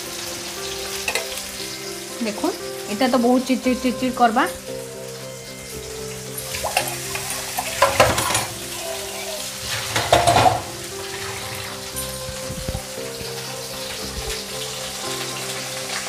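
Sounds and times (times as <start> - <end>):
battered mushrooms frying in oil: 0.0 - 16.0.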